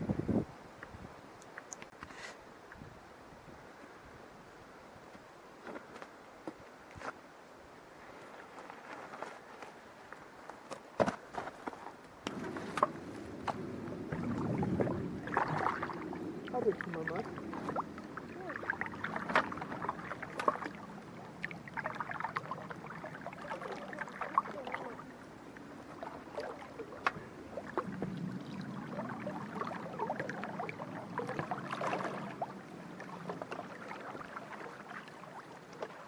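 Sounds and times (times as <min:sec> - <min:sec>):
water splashing and gurgling: 0:12.3 - 0:36.0.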